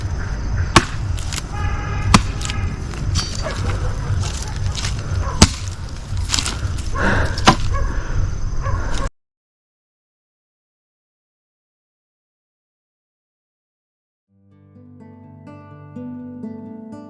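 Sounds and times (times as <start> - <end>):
axe chopping firewood: 0.7 - 7.8.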